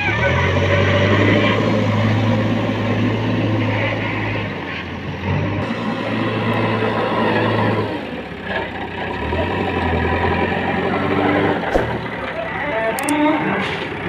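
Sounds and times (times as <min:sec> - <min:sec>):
heavy diesel engine running: 0:00.0 - 0:14.0
sharp knock: 0:11.7 - 0:12.1.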